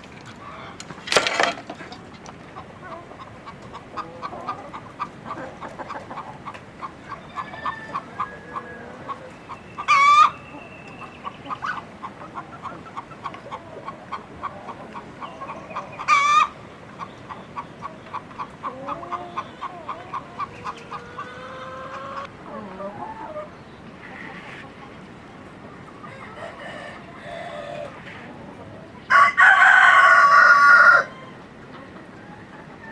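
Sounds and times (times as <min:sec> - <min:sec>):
chickens clucking: 0:00.0 - 0:32.9
chicken squawks: 0:02.8 - 0:24.8.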